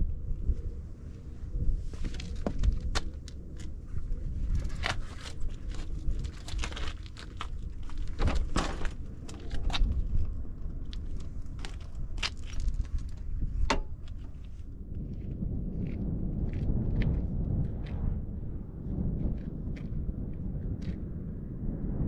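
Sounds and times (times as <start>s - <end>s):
low rumble: 0.0s - 22.0s
gear clicking and clunking: 4.5s - 14.7s.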